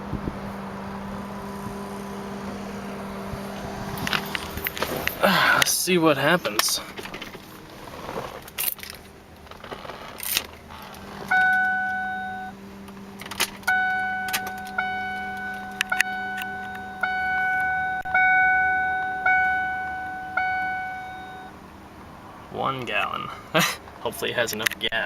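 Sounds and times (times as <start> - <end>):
keys jangling in ignition: 8.5 - 9.1
dashboard warning chime: 11.3 - 12.6, 13.7 - 21.6.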